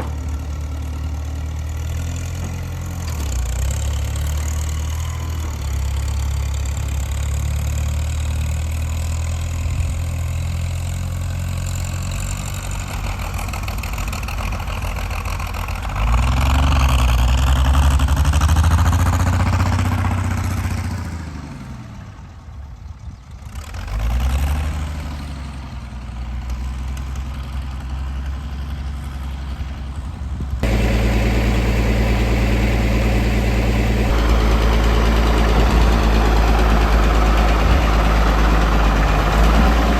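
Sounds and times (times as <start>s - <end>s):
tractor engine running: 0.0s - 21.1s, 29.7s - 39.9s.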